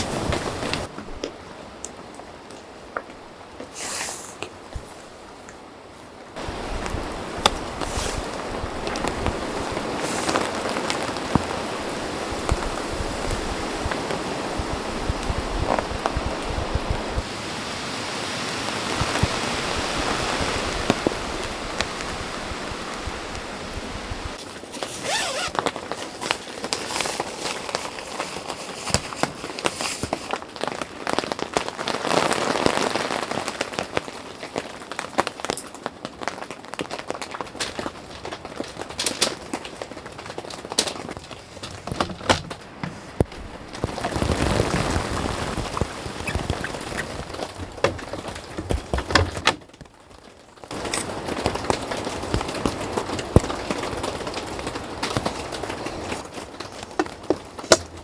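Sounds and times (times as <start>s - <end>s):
rain hiss: 0.0s - 0.9s, 3.6s - 5.5s, 6.4s - 24.4s, 42.2s - 47.8s, 50.7s - 57.0s
raindrops tapping: 0.0s - 3.2s, 6.4s - 17.4s, 18.6s - 24.4s, 28.9s - 58.0s.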